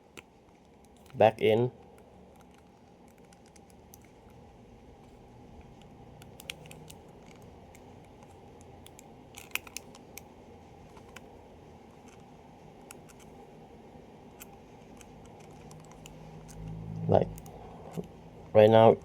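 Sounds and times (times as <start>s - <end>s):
small parts clicking and scraping: 0.1s - 4.4s, 5.0s - 11.3s, 11.9s - 13.4s, 14.3s - 16.8s.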